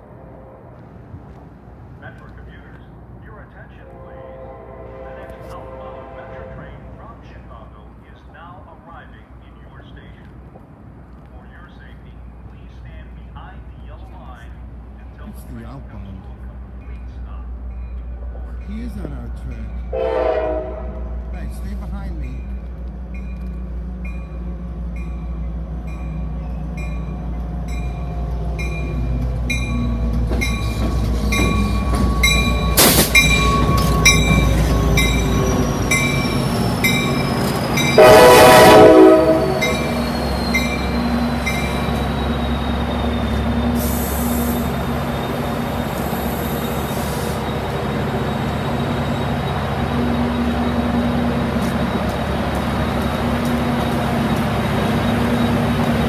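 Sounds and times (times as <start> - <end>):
train horn blast: 0.0 - 0.9, 3.8 - 7.0, 19.9 - 21.4, 37.8 - 44.8
diesel train engine rumble: 0.0 - 56.0
train bell ringing: 16.8 - 20.0, 21.3 - 56.0
wheel and brake squeal: 29.7 - 38.0, 39.6 - 52.2.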